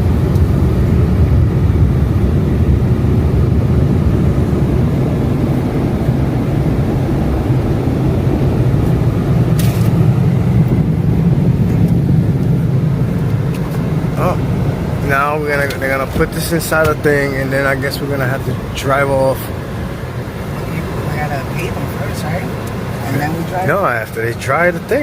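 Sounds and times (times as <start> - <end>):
car wash drying blowers: 0.0 - 25.0.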